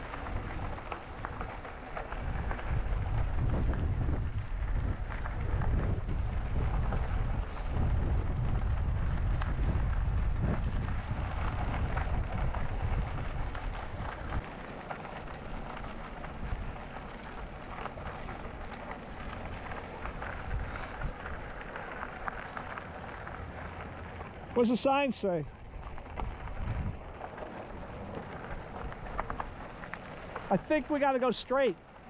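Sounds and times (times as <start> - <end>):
wind buffeting microphone: 0.0 - 31.0
tyres rolling on trail: 0.0 - 32.0.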